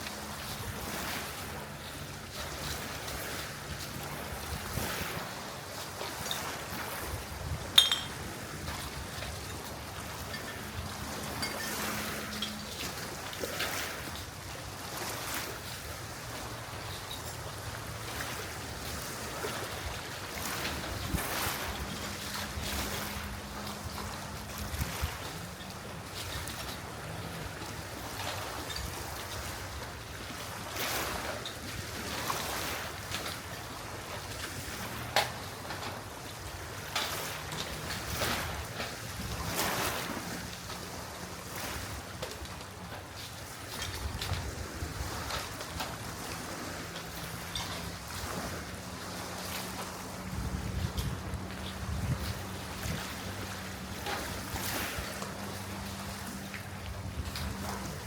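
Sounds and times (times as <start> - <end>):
sea waves: 0.0 - 58.0
wind: 0.0 - 58.0.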